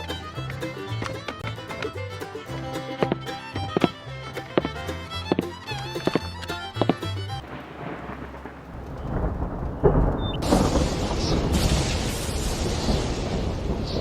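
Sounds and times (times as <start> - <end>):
low rumble: 7.4 - 14.0.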